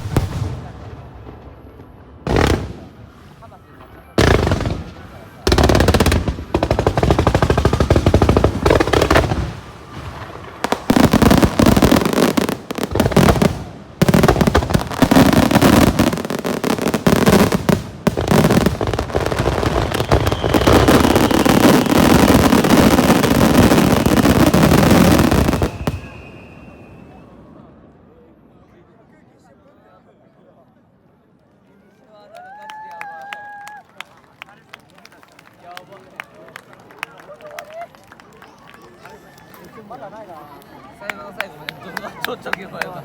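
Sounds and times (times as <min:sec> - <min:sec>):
crackling fireworks launches: 0:00.0 - 0:27.6.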